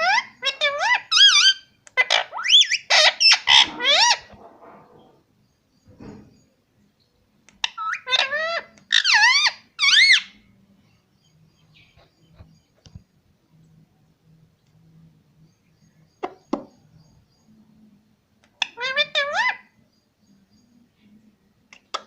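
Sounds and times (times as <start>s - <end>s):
parrot calling: 0.0s - 5.2s, 7.6s - 10.4s, 18.5s - 19.8s.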